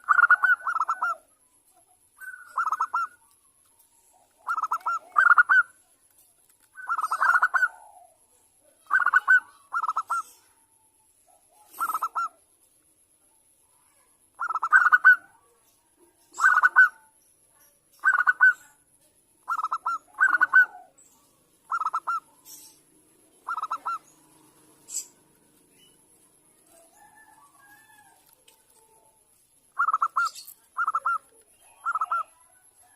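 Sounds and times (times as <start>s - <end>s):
dove cooing: 0.0s - 1.3s, 2.2s - 3.3s, 4.0s - 5.8s, 6.8s - 10.6s, 11.4s - 12.4s, 14.4s - 15.5s, 16.3s - 17.1s, 18.0s - 18.7s, 19.4s - 21.0s, 21.6s - 26.0s, 29.8s - 32.9s.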